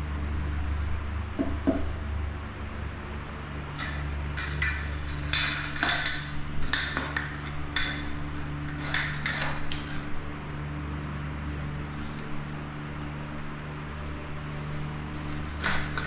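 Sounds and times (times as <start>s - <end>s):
steady low hum: 0.0s - 16.0s
metal parts clinking and scraping: 3.8s - 10.1s, 15.2s - 16.0s.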